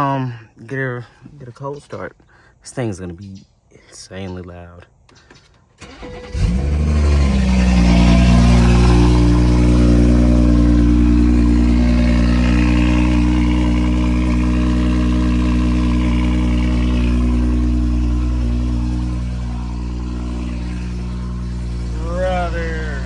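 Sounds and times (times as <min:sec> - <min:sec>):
loud car engine idling: 0:05.8 - 0:23.0.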